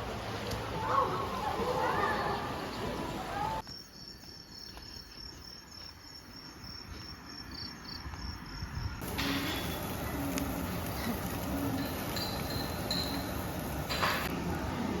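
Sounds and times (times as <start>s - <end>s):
insect chirping: 3.6s - 10.8s.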